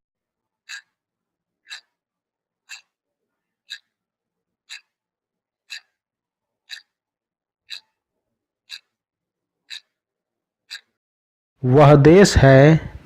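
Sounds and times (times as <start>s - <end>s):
clock ticking: 0.6s - 1.0s, 1.6s - 2.0s, 2.7s - 3.0s, 3.7s - 4.0s, 4.7s - 5.0s, 5.7s - 6.0s, 6.7s - 7.0s, 7.7s - 8.0s, 8.7s - 9.0s, 9.7s - 10.0s, 10.7s - 11.0s.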